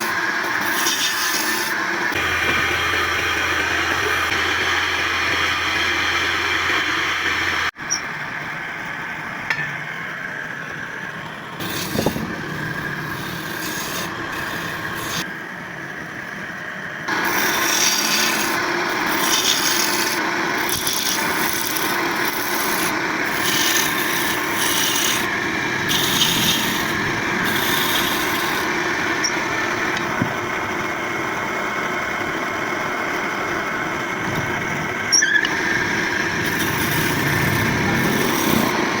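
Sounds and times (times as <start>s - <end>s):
hand tool scraping wood: 0.0s - 2.3s, 11.6s - 15.3s, 17.1s - 29.3s, 35.2s - 39.0s.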